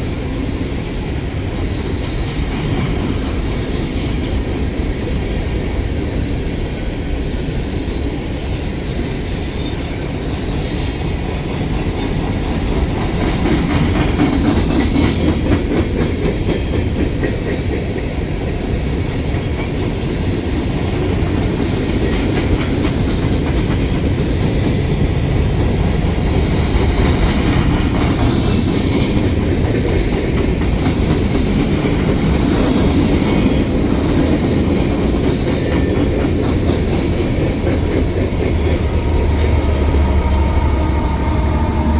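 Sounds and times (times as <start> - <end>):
freight train rumble: 0.0 - 41.9
high wheel squeals: 7.2 - 11.3, 17.0 - 18.3, 32.2 - 36.7, 38.8 - 41.9.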